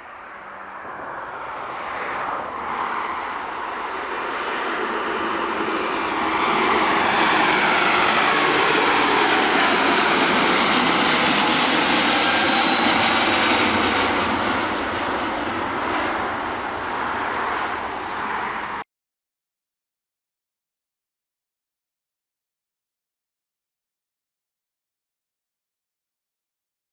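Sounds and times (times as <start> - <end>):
jet engine roar with falling whine: 0.0 - 18.8.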